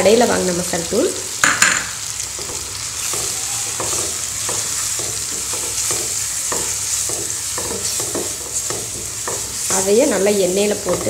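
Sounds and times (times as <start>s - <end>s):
vegetables sizzling in oil: 0.0s - 11.0s
wooden spatula scraping a pan: 2.4s - 11.0s.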